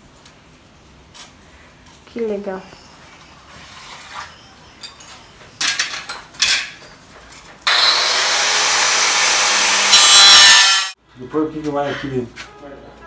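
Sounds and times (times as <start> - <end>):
power tool running: 7.7 - 11.0.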